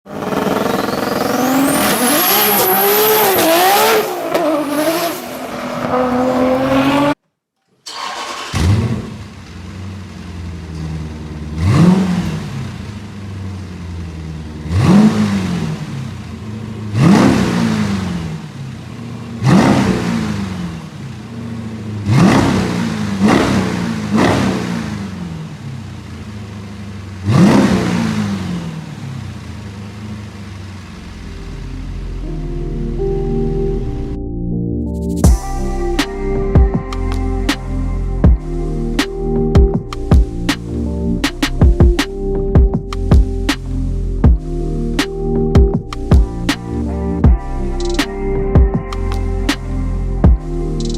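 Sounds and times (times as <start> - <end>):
engine throttle blips: 7.8 - 34.4
car engine starting and idling: 7.8 - 50.9.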